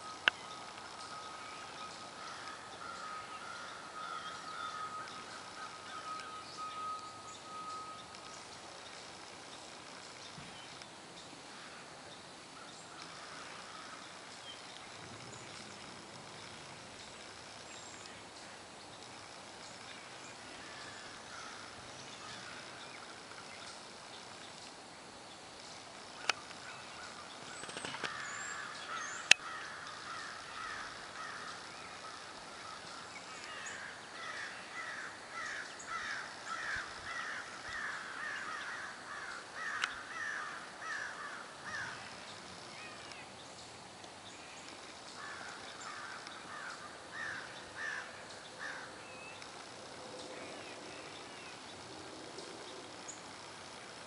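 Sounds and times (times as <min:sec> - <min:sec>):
bird calling: 0:00.0 - 0:08.8, 0:26.2 - 0:43.3, 0:44.3 - 0:49.5
sharp clicks: 0:39.8 - 0:40.0.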